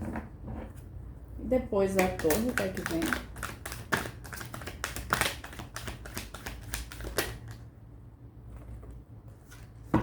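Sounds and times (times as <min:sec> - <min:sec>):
cards clicking and tapping on table: 0:02.0 - 0:07.5.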